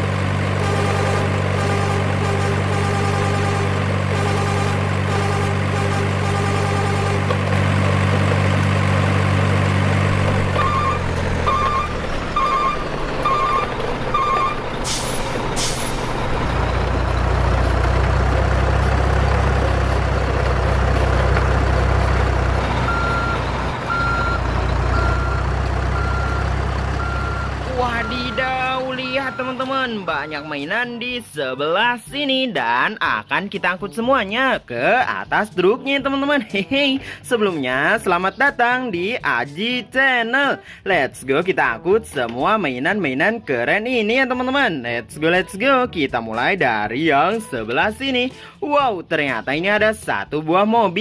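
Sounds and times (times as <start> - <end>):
heavy truck engine: 0.0 - 31.2, 37.0 - 38.4
reversing beeps: 10.5 - 14.6, 22.9 - 29.7
air brake hisses: 14.8 - 16.2.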